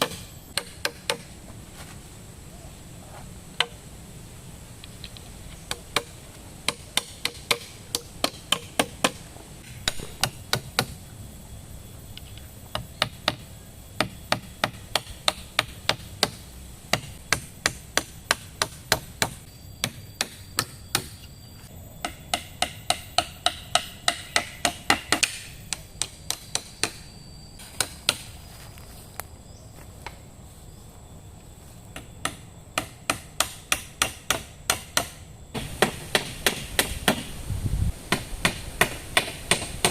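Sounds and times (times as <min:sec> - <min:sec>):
tool striking wood: 0:00.0 - 0:01.3, 0:05.7 - 0:11.0, 0:22.0 - 0:27.0, 0:32.0 - 0:37.3, 0:38.1 - 0:39.9.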